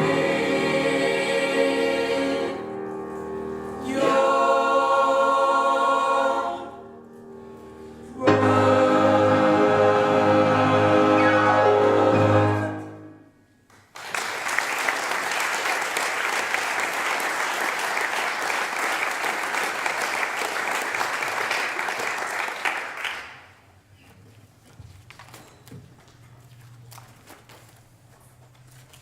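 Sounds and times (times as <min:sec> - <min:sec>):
choir singing a chord: 0:00.0 - 0:13.4
audience applauding: 0:13.7 - 0:23.5.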